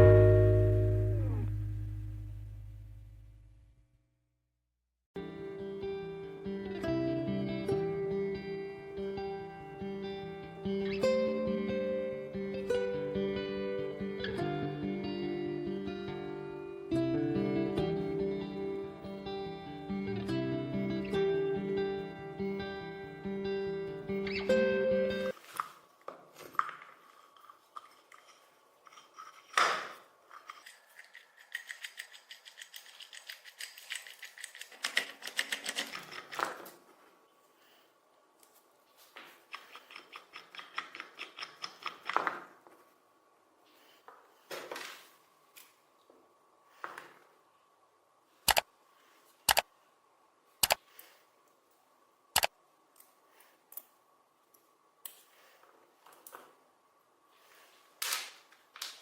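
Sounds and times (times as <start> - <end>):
faint high tone: 0.0 - 2.3
hand tools clicking on metal: 30.3 - 36.4, 39.5 - 42.2
fainter clicks: 49.5 - 49.7.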